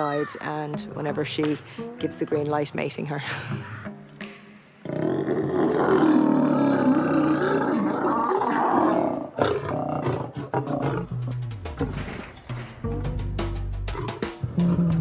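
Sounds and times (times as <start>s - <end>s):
background music: 0.0s - 7.4s, 9.0s - 15.0s
lions roaring: 4.8s - 11.3s, 13.9s - 15.0s.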